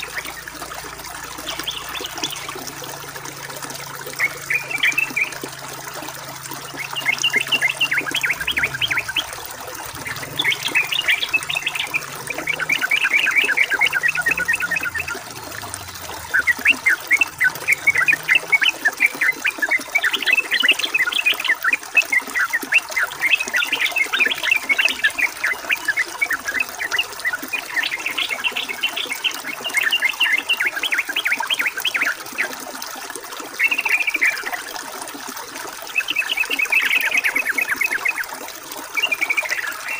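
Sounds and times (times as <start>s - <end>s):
trickle of running water: 0.0s - 39.9s.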